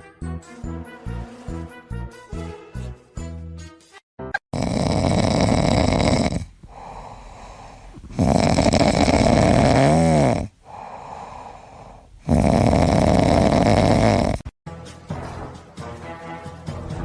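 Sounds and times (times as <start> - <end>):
pet snoring loudly: 4.5 - 14.6
quieter breaths: 6.4 - 8.2, 10.5 - 12.3.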